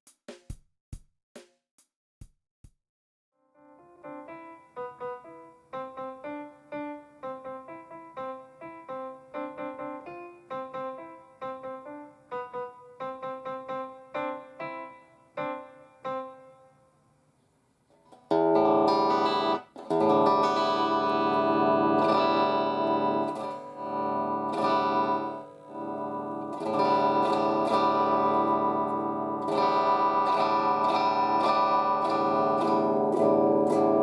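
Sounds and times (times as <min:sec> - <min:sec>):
piano note: 0:03.4 - 0:16.9, 0:18.3 - 0:34.0
amplified guitar chords strummed: 0:18.3 - 0:34.0.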